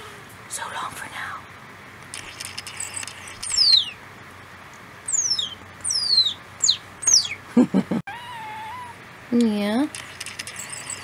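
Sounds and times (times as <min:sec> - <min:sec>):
bird chirping: 0:02.3 - 0:04.0, 0:05.1 - 0:07.4, 0:10.4 - 0:11.0.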